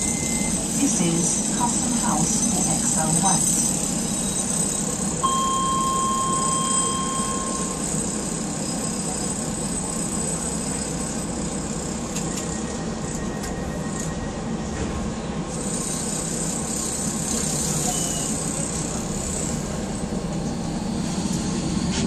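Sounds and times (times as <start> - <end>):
train wheels rumbling on track: 0.0 - 22.0
steady high tone: 5.2 - 8.4.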